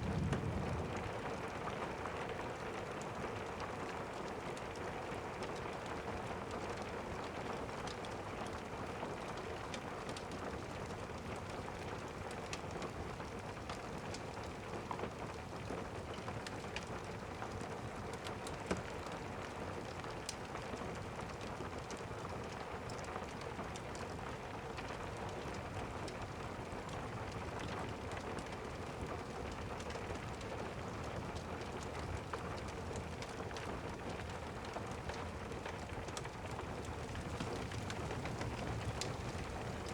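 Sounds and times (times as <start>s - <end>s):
steady rain: 0.0s - 39.9s
log fire crackling: 31.3s - 39.9s.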